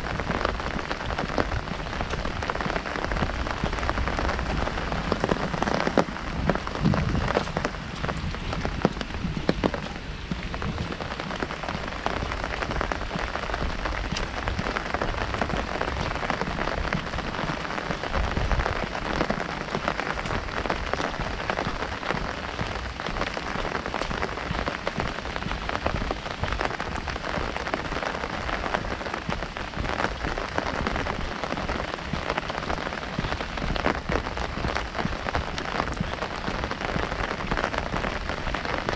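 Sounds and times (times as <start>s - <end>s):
heavy rain on umbrella: 0.0s - 38.9s.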